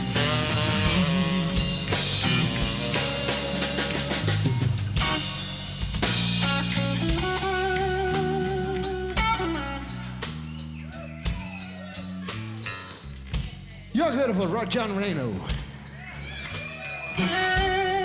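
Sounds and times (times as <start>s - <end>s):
blues band playing: 0.0s - 18.0s.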